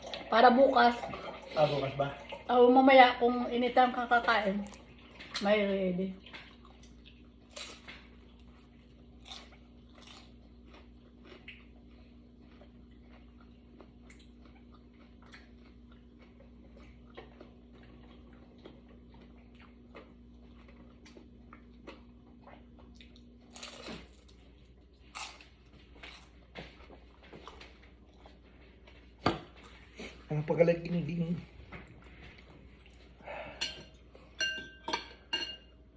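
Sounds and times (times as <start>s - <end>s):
faint steady hum: 0.0s - 35.9s
person chewing and crunching: 6.2s - 30.3s.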